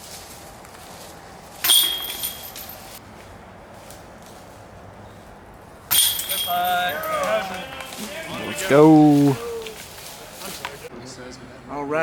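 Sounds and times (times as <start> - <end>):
disc hitting metal chains: 1.6 - 3.0, 5.9 - 7.4.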